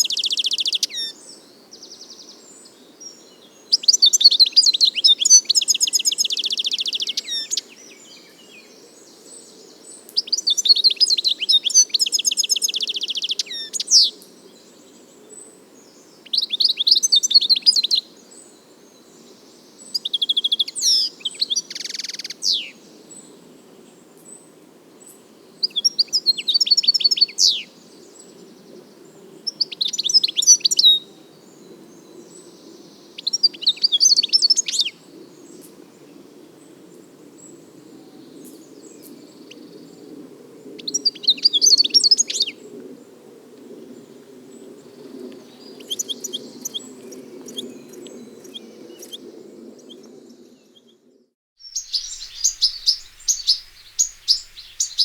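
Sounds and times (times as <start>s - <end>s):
goldfinch twittering: 45.8s - 49.2s, 51.6s - 55.0s.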